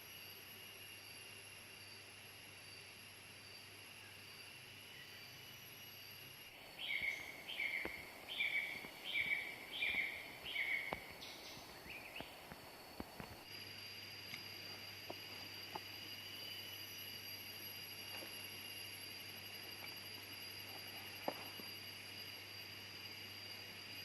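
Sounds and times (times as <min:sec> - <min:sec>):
insects droning: 0:00.0 - 0:24.0
bird calling: 0:06.7 - 0:12.4.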